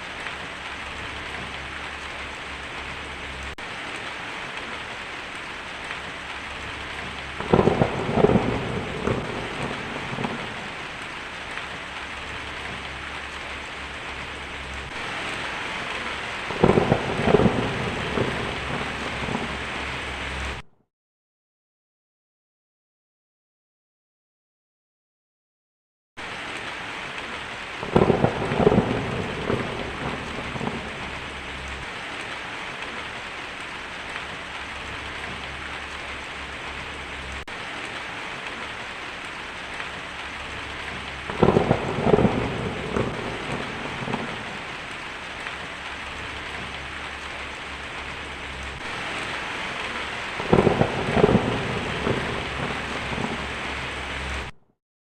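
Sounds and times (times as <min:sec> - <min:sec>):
heavy rain on a tin roof: 0:00.0 - 0:20.7, 0:26.2 - 0:54.6
thunder rumbling and cracking: 0:05.6 - 0:20.6, 0:27.1 - 0:54.6.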